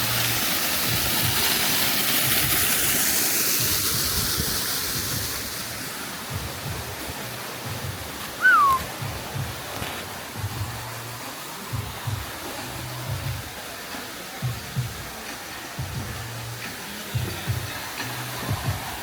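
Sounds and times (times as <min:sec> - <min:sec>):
waterfall rushing: 0:00.0 - 0:19.0
short falling whistle: 0:08.4 - 0:08.9.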